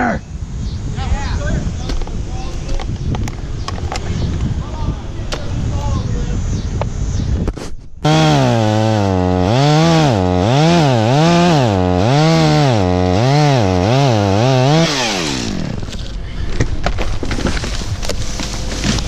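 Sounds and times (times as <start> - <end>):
chainsaw engine revving: 8.0 - 16.0.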